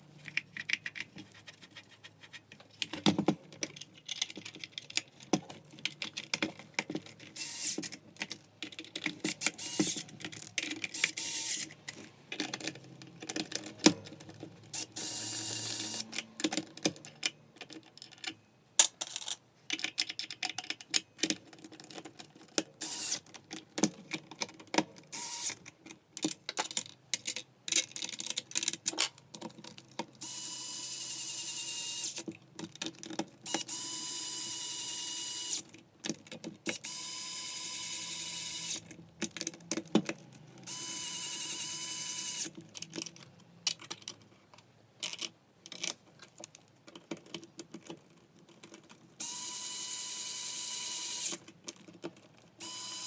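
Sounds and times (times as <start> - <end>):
clatter of small parts and tools: 0.2 - 53.0
electric screwdriver whirring: 7.4 - 7.9, 9.4 - 10.0, 11.0 - 11.7, 36.7 - 38.8, 40.7 - 42.5, 49.2 - 51.4, 52.6 - 53.0.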